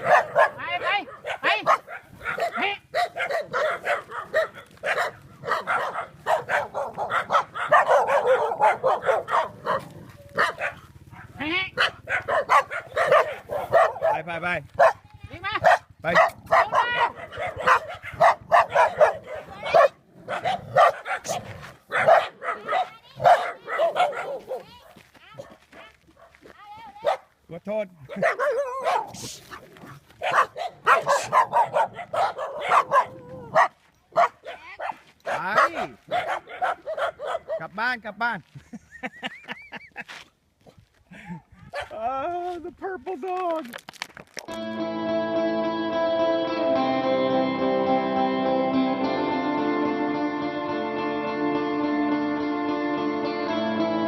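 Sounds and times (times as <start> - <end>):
dogs barking: 0.0 - 15.0, 15.6 - 27.3, 28.0 - 37.7, 41.7 - 42.0.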